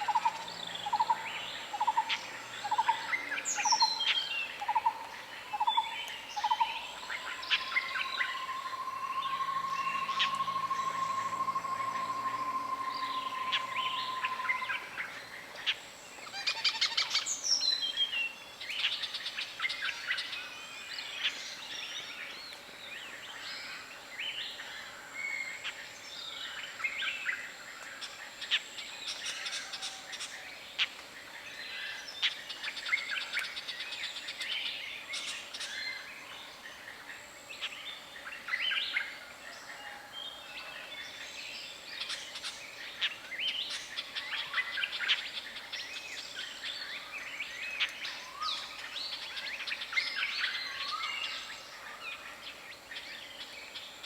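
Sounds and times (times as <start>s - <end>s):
birds chirping and trilling: 0.0s - 54.0s
steady whistled tone: 7.4s - 15.0s.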